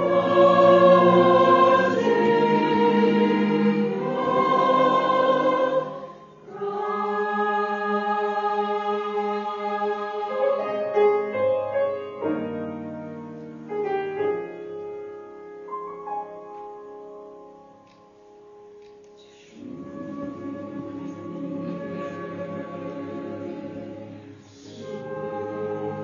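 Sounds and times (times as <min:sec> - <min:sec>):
church choir singing: 0:00.0 - 0:12.0, 0:19.2 - 0:26.0.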